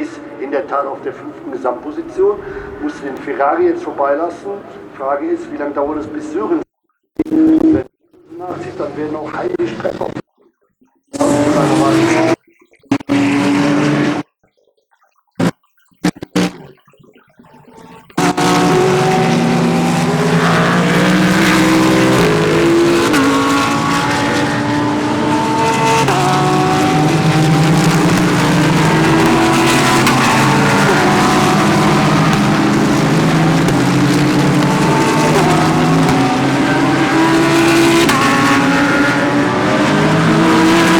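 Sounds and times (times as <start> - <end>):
race car engines: 0.0 - 6.6, 7.2 - 10.2, 11.1 - 14.2, 17.4 - 40.9.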